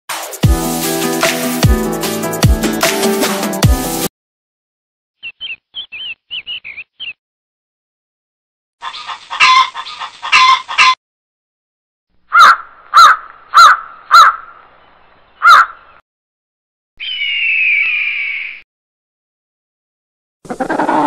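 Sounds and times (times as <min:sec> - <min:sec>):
short high bird chirps: 0:05.2 - 0:07.2, 0:17.0 - 0:18.6
harsh chicken clucking: 0:08.8 - 0:11.0, 0:12.3 - 0:14.4
loud crow caws: 0:12.3 - 0:14.5, 0:15.4 - 0:15.8.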